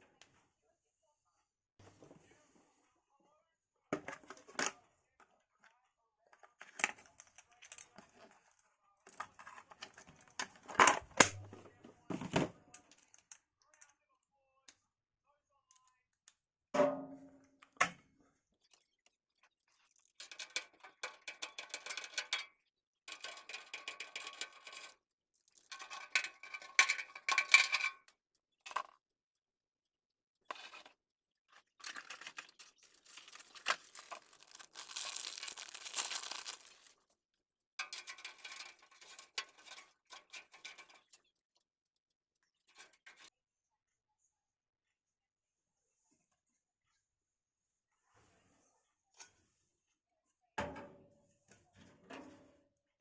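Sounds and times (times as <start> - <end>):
packaging crinkling and clicking: 31.9 - 36.9
bright rustle: 33.0 - 36.9.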